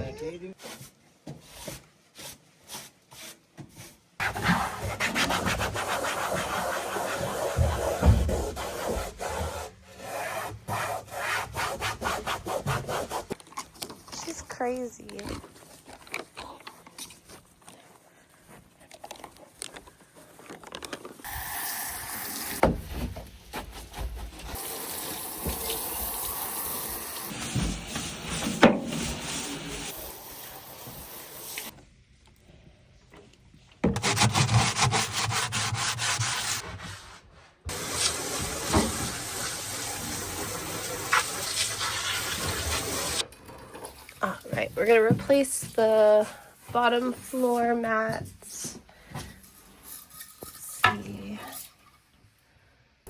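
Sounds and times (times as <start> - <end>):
rubbing and scraping: 0.6 - 14.6, 27.3 - 30.1, 33.9 - 39.4, 49.2 - 52.0.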